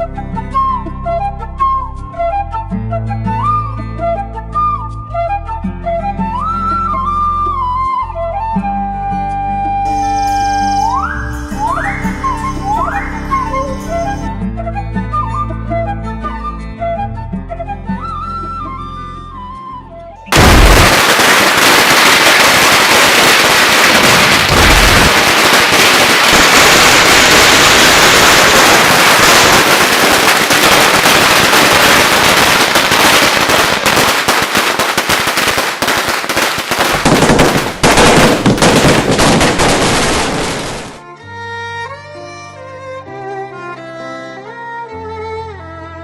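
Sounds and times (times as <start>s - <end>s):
firecrackers crackling: 20.3s - 41.0s.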